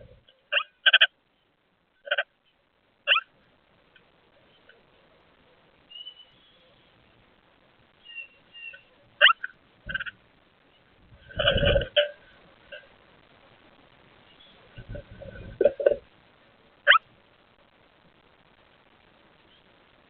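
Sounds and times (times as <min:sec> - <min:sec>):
songbirds calling: 0:04.0 - 0:07.1, 0:07.9 - 0:12.8.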